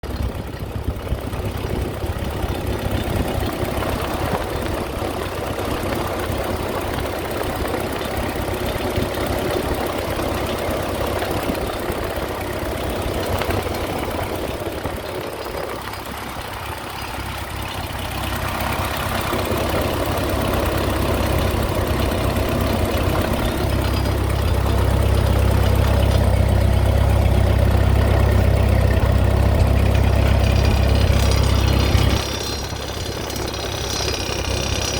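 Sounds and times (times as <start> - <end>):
strange engine noise: 0.0 - 34.9
tractor engine running: 0.0 - 34.9
strong low hum: 20.8 - 34.9.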